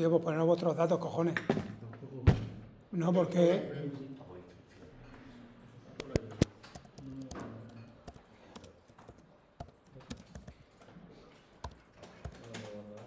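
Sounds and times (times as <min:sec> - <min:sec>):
keyboard keystroke clicks: 0:06.0 - 0:10.7, 0:11.6 - 0:12.5.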